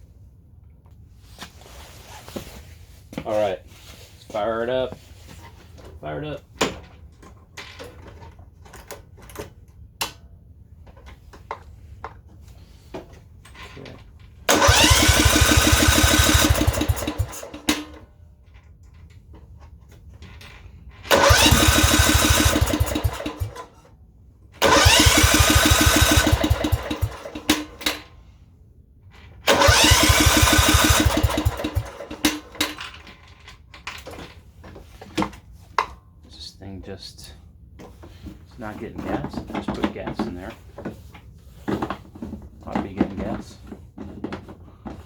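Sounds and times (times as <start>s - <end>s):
engine starter cranking: 14.5s - 18.0s, 21.1s - 23.8s, 24.6s - 28.1s, 29.5s - 33.2s.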